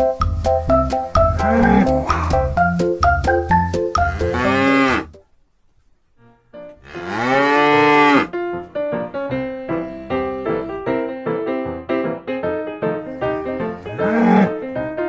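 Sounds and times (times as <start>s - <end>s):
bouncy keyboard tune: 0.0s - 5.2s
cow mooing: 1.3s - 2.3s, 4.0s - 5.2s, 6.8s - 8.4s, 13.7s - 14.6s.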